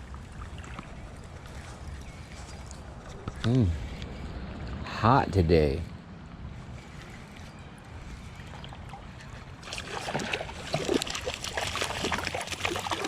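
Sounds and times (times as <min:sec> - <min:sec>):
small splashes and crackles: 0:00.0 - 0:04.8, 0:06.8 - 0:13.0
water noise: 0:00.0 - 0:13.0.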